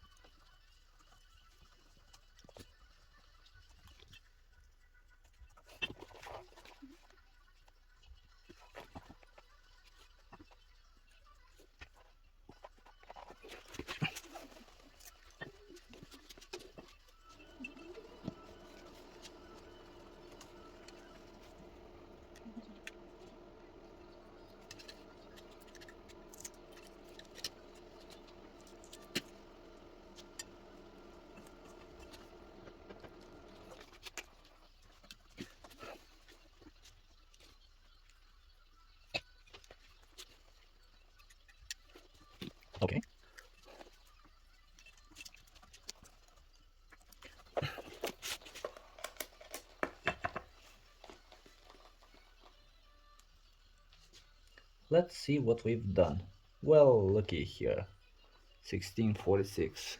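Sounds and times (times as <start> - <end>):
faint steady hum: 7.0 - 59.9.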